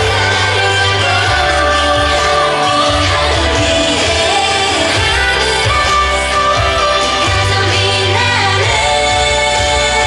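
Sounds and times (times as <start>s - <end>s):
backing track with bass line: 0.0s - 10.0s
female group singing pop song: 0.0s - 10.0s.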